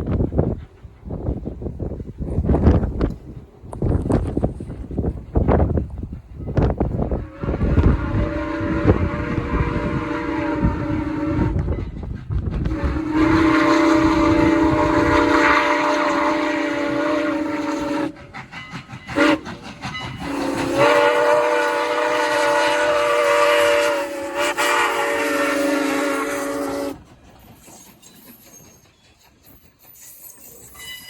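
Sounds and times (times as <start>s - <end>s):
train rumbling: 0.0s - 31.0s
locomotive horn blasts: 7.2s - 11.7s, 12.7s - 18.2s, 20.2s - 27.0s.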